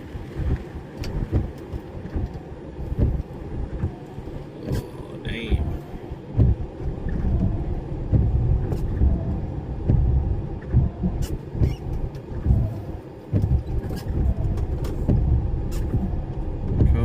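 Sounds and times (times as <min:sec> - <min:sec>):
lorry engine and road rumble: 0:00.0 - 0:17.0
sharp clicks and knocks: 0:06.4 - 0:17.0.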